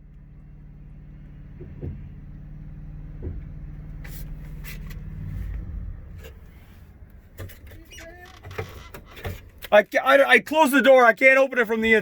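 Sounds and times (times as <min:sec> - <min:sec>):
brief sharp creaks: 0:06.2 - 0:09.7.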